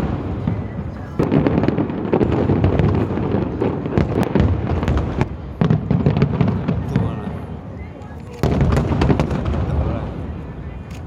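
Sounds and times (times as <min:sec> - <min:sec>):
fireworks booming rumble: 0:00.0 - 0:10.9
fireworks cracking and popping: 0:00.0 - 0:11.0.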